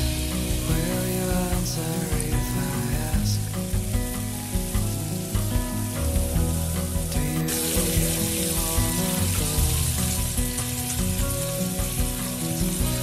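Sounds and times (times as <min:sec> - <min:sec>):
background music: 0:00.0 - 0:13.0
oil sizzling in a wok: 0:00.0 - 0:13.0.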